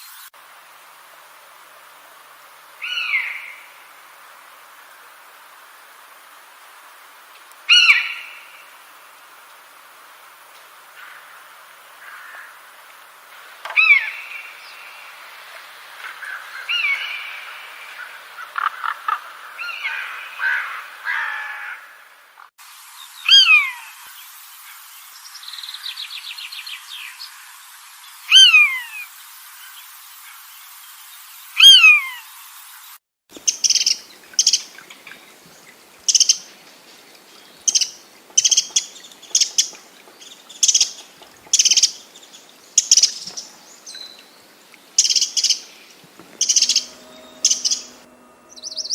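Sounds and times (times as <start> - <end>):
bird trill: 33.4 - 34.8, 36.1 - 36.5, 37.6 - 39.8, 45.0 - 48.9
birds chirping and warbling: 33.4 - 48.9
downward-sliding whistled bird call: 46.2 - 48.9
short high bird chirps: 46.3 - 48.9.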